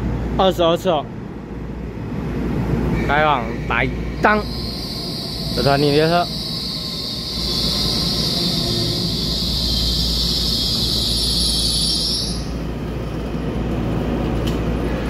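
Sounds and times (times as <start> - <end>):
train low rumble: 0.0 - 15.0
high-pitched hiss: 3.0 - 12.6.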